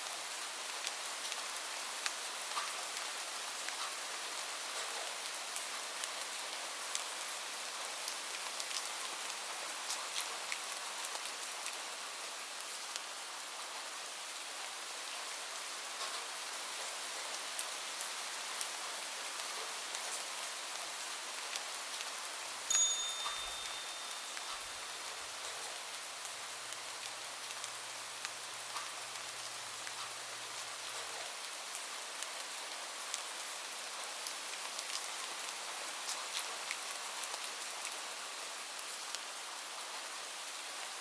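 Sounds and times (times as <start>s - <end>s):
steady rain: 0.0s - 41.0s
high chime ringing: 22.7s - 25.8s.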